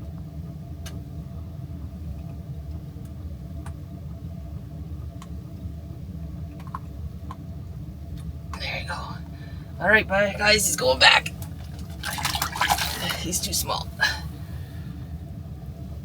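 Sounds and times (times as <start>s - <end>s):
low mechanical hum: 0.0s - 16.0s
faint steady tones: 8.6s - 14.9s.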